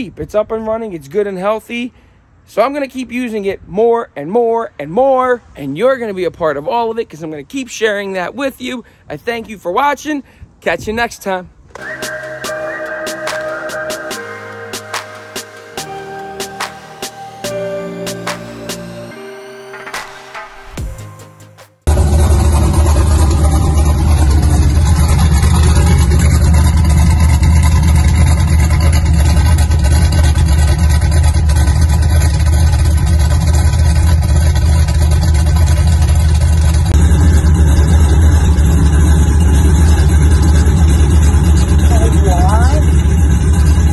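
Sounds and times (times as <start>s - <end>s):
vehicle engine running: 21.9s - 43.9s.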